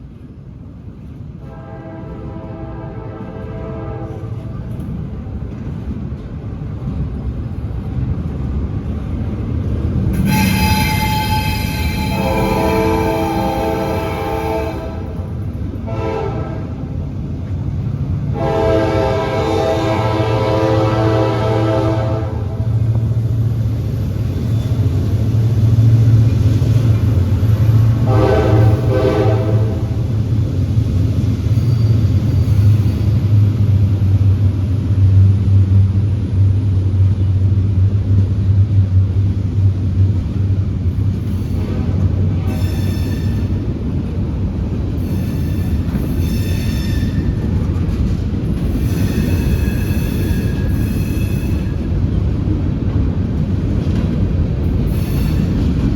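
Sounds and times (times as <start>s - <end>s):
low rumble of train: 0.0s - 55.9s
locomotive air horn blasts: 1.5s - 4.5s, 10.2s - 17.0s, 18.3s - 22.8s, 27.9s - 30.1s.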